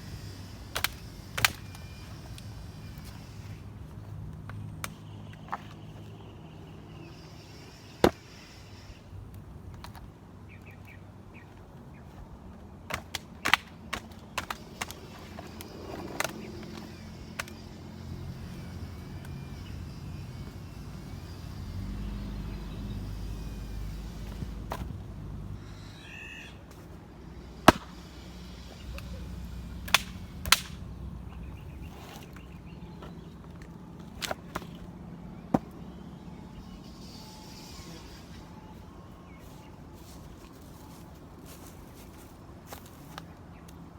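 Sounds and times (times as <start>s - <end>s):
axe chopping wood: 0.7s - 1.8s, 12.9s - 15.1s, 24.2s - 25.0s, 27.6s - 28.0s, 29.8s - 30.8s
vehicle engine rumble: 14.2s - 26.0s, 26.6s - 43.9s.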